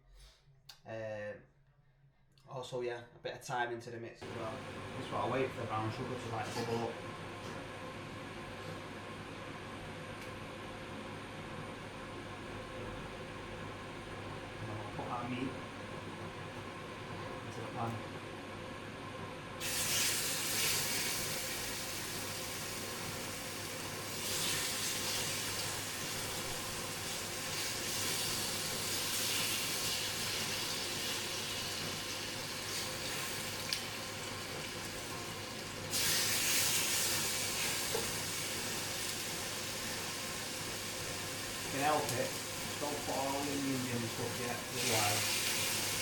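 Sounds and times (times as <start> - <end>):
bubbling sugar: 18.7 - 46.0
chicken sizzling in a pan: 19.6 - 46.0.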